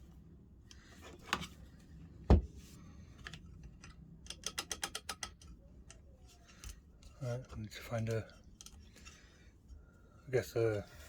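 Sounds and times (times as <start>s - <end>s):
knock on a workbench: 2.3s - 2.5s.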